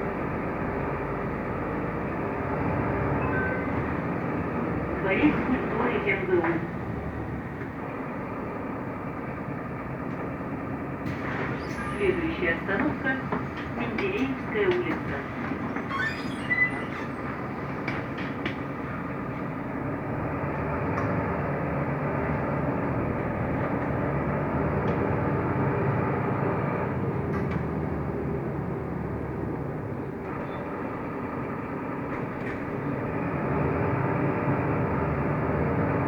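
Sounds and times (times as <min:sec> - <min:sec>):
bus engine and road noise: 0:00.0 - 0:36.0.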